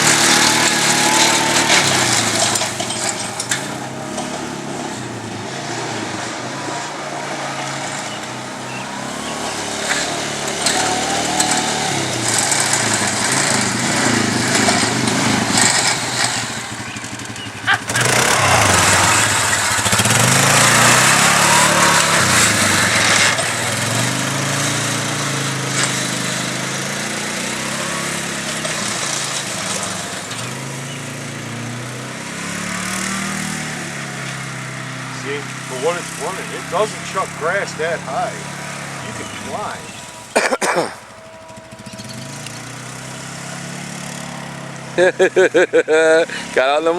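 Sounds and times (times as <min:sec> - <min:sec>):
engines running: 0:00.0 - 0:46.9.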